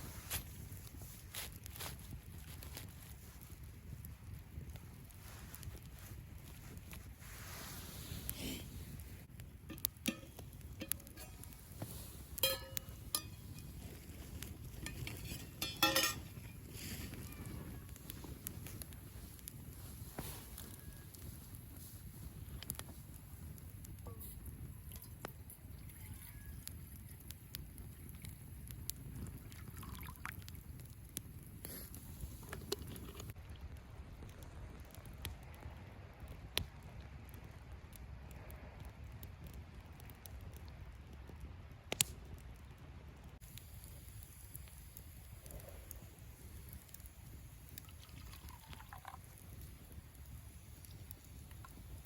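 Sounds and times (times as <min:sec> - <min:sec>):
bonfire crackling: 0:00.0 - 0:52.0
metal cookware clinking: 0:09.7 - 0:11.4, 0:12.4 - 0:13.6, 0:14.8 - 0:16.5.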